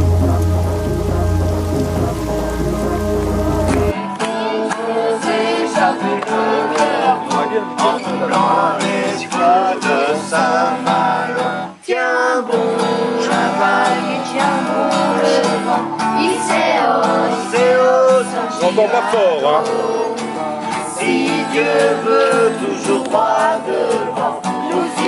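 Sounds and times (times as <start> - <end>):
melody line: 0.0 - 3.9
strummed acoustic guitar music: 0.0 - 11.8, 12.5 - 25.0.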